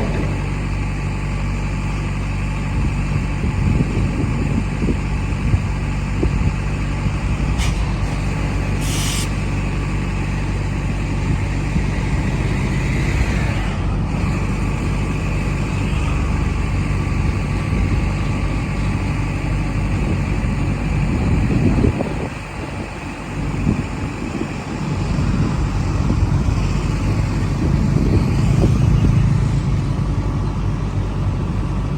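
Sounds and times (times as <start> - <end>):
diesel train running: 0.0 - 31.9
air hissing: 7.6 - 9.5.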